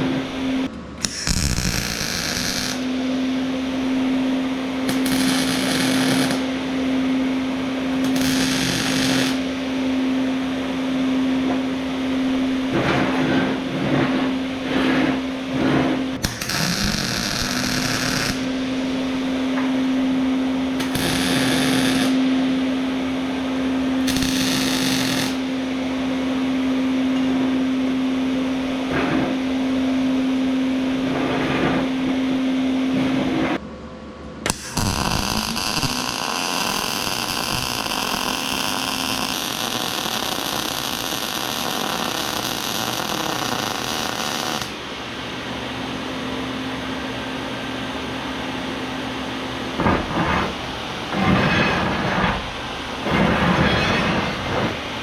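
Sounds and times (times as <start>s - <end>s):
angle grinder on steel: 1.0s - 2.9s, 4.9s - 6.5s, 8.0s - 9.5s, 14.7s - 19.1s, 20.8s - 22.2s, 24.0s - 25.5s, 34.5s - 44.7s.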